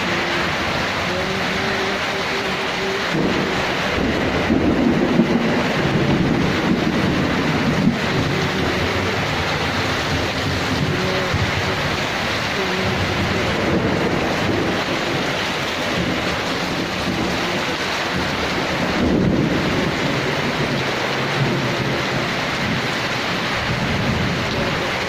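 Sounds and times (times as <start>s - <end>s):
heavy rain pouring: 0.0s - 25.0s
low rumble of thunder: 3.0s - 25.0s.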